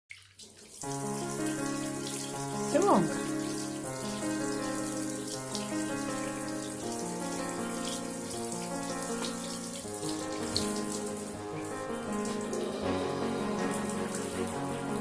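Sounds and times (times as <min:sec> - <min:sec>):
water running from tap into sink: 0:00.1 - 0:15.0
slow background music: 0:00.8 - 0:15.0.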